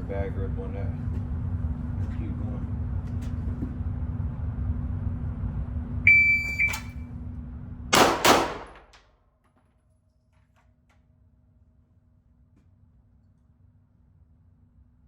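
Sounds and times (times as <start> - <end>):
shot timer beep: 6.1 - 7.0
pistol shots: 7.9 - 9.0.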